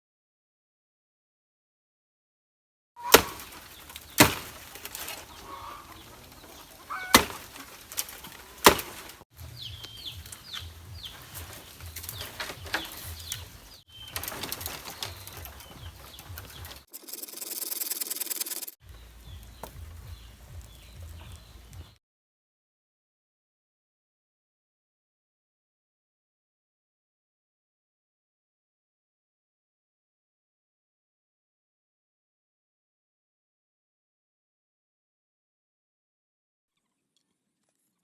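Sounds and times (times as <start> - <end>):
wing flaps: 3.0 - 9.2, 10.2 - 18.8
chickens chirping: 3.0 - 22.0.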